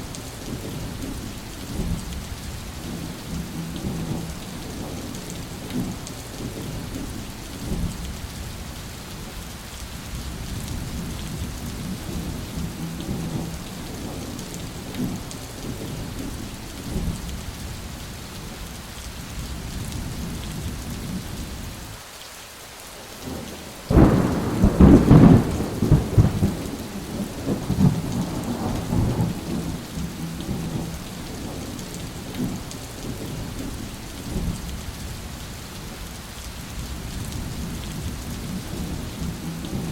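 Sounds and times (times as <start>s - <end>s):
steady rain: 0.0s - 39.9s
low rolling thunder: 0.4s - 8.2s, 10.2s - 17.6s, 23.2s - 35.1s, 36.8s - 39.9s
sharp loud thunderclap: 23.9s - 29.8s.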